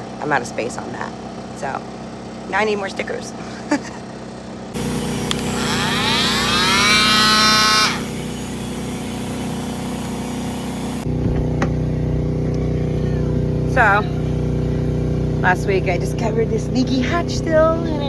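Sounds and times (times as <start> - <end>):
steady mechanical hum: 0.0 - 18.0
motor whine rising in pitch: 4.8 - 16.2.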